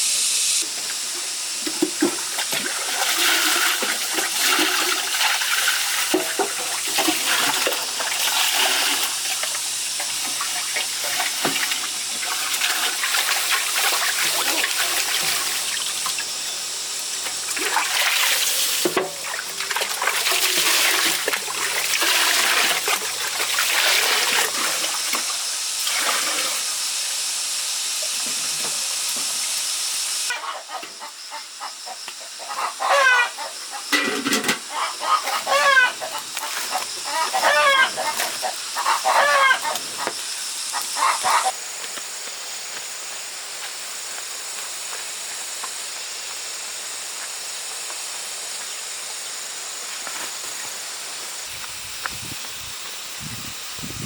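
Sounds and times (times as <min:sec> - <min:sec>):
water running and splashing: 0:00.8 - 0:27.0, 0:35.2 - 0:48.8.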